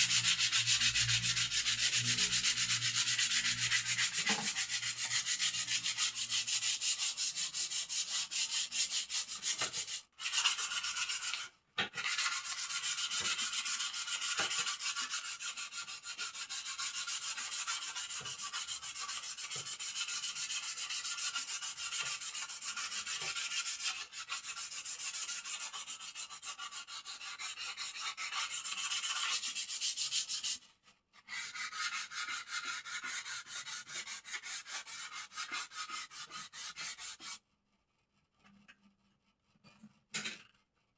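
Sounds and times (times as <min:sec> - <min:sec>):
sandpaper rubbing on wood: 0:00.0 - 0:11.4, 0:12.1 - 0:30.6, 0:31.3 - 0:37.4.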